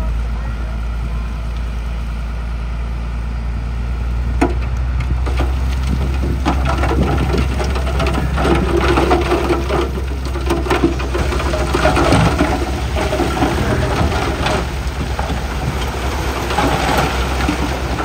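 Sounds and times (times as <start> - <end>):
heavy diesel engine running: 0.0 - 18.0
rock clattering and crunching: 4.3 - 18.0.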